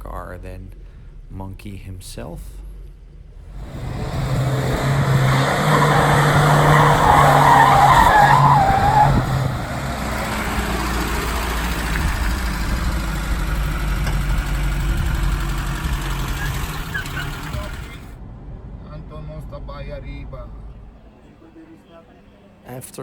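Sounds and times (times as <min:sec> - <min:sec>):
car engine at high revs: 0:02.6 - 0:18.8
tyres squealing: 0:03.5 - 0:18.1.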